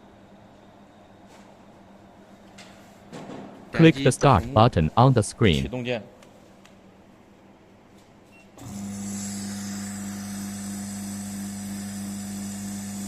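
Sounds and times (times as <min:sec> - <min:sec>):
electric oil pump humming: 0:08.6 - 0:13.0.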